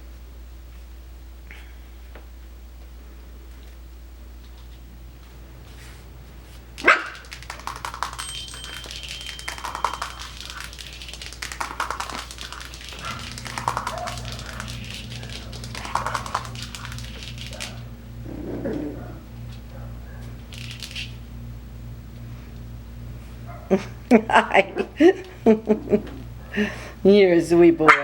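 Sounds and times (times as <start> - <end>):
small paws clicking and scuffling: 4.4 - 17.9, 18.6 - 21.2
low hum: 4.8 - 27.3
puppies yipping and barking: 12.9 - 17.9.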